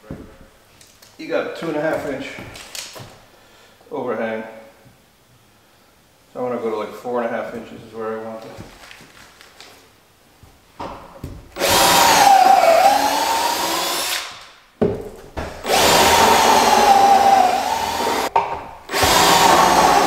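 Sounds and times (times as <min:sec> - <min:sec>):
power drill running: 0:11.6 - 0:14.3, 0:15.6 - 0:18.3, 0:18.9 - 0:20.0.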